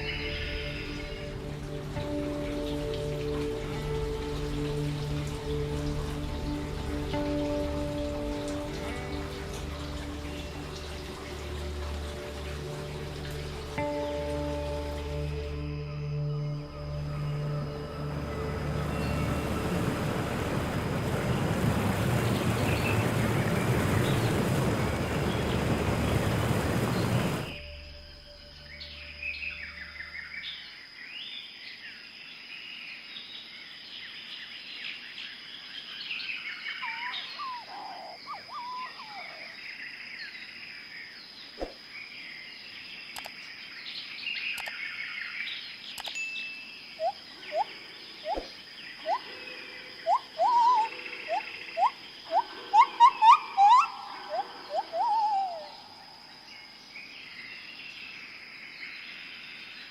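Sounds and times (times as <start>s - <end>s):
insect drone: 0.0s - 59.9s
birds chirping and calling: 36.6s - 39.6s, 47.0s - 56.0s
bird rising whistled notes: 46.2s - 49.4s, 50.0s - 55.9s.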